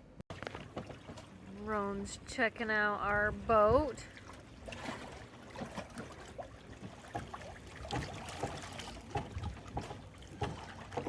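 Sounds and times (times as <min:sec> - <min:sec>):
faint clicks and splashes: 0:00.3 - 0:01.8, 0:04.0 - 0:11.0
water lapping against hull: 0:00.3 - 0:11.0.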